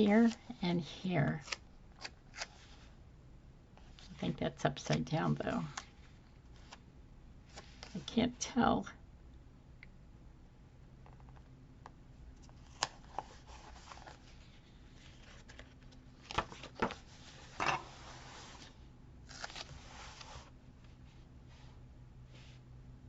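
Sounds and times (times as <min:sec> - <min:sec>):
paper rustling and crinkling: 0:12.4 - 0:20.5.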